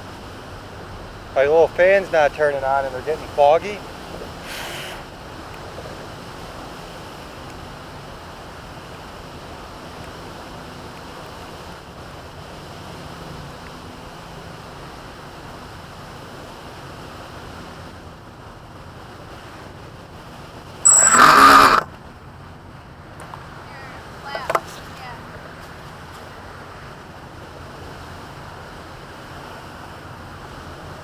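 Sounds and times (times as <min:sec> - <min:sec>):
steady outdoor rushing noise: 0:00.0 - 0:31.0
loud harsh burst: 0:20.8 - 0:21.9
thin high-pitched tone: 0:20.8 - 0:21.9.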